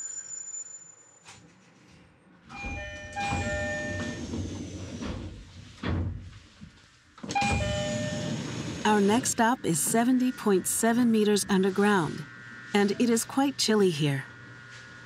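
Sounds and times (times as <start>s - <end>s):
train running noise: 2.6s - 5.8s, 7.3s - 15.0s.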